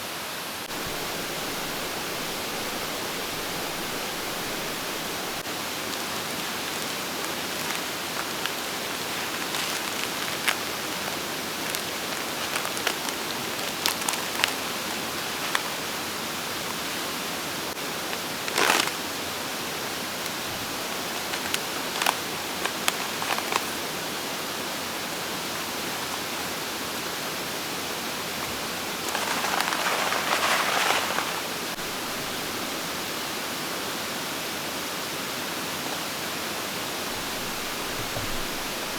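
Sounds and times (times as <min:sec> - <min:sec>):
loud hiss: 0:00.0 - 0:24.7, 0:27.8 - 0:33.8
mountain stream rushing: 0:00.0 - 0:38.9.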